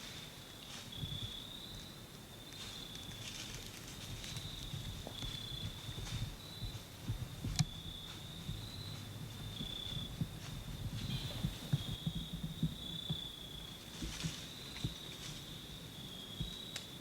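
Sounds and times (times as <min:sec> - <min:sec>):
insects trilling: 0:00.9 - 0:17.0
low faint rumble: 0:03.2 - 0:16.6
soft thumps: 0:04.9 - 0:13.3.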